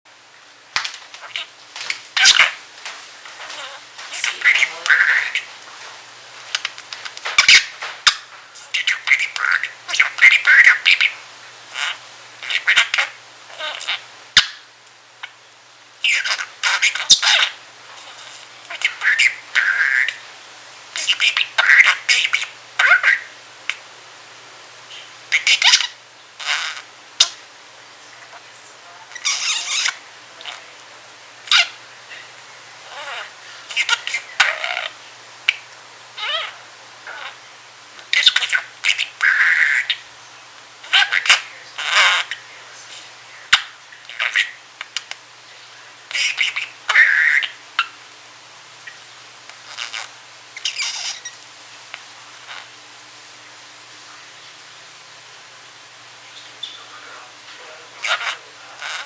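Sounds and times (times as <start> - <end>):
budgerigar chirps and warbles: 2.2 - 2.6, 3.4 - 5.5, 7.3 - 14.6, 16.0 - 20.2, 21.0 - 23.8, 24.9 - 27.4, 28.1 - 30.7, 31.5 - 32.2, 32.8 - 35.6, 36.2 - 37.4, 38.1 - 40.1, 40.8 - 44.6, 46.1 - 48.0, 49.7 - 51.4, 56.3 - 57.0, 58.0 - 59.0.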